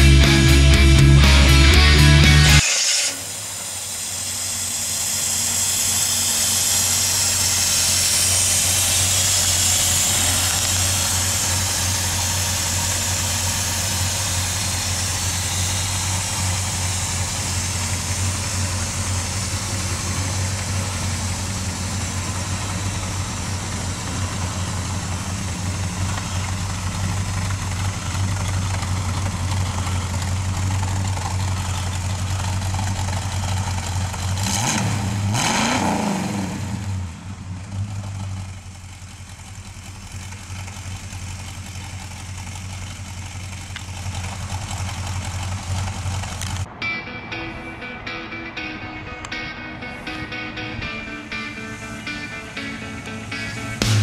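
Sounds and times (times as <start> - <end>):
high hiss: 2.6 - 24.5, 50.9 - 54.0
car engine idling: 3.2 - 35.6, 36.4 - 46.8, 48.0 - 54.0.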